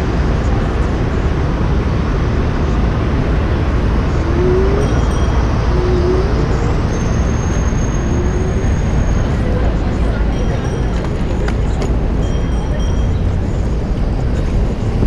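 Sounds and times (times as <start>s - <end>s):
city street traffic rumble: 0.0s - 15.0s
brief rising tones: 4.1s - 8.8s.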